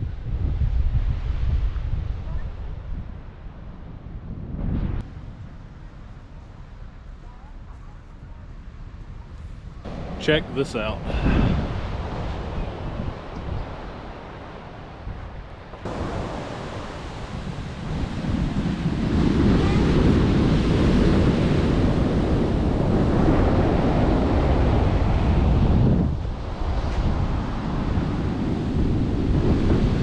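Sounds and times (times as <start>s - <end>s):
wind buffeting microphone: 0.0s - 30.0s
ocean surf breaking on beach: 9.9s - 30.0s.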